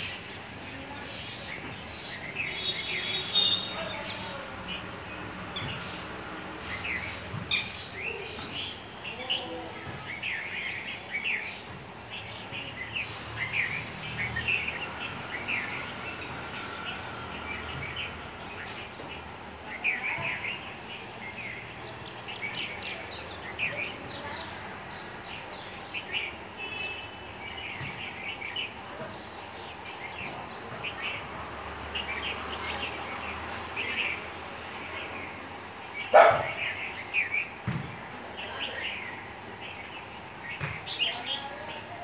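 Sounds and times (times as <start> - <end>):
birds chirping: 0.0 - 42.0
outdoor background noise: 0.0 - 42.0.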